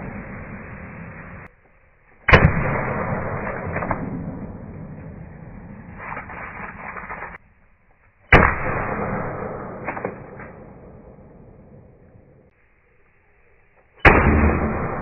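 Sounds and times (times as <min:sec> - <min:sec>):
air pistol shot crack: 0:02.3 - 0:06.4, 0:08.3 - 0:11.8, 0:14.0 - 0:15.0
rustle: 0:05.0 - 0:08.4.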